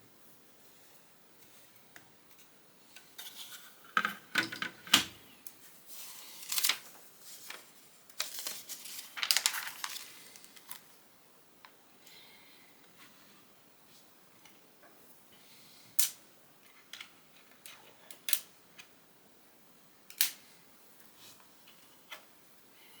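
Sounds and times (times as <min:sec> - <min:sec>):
plastic pieces rustling: 0:08.2 - 0:10.8.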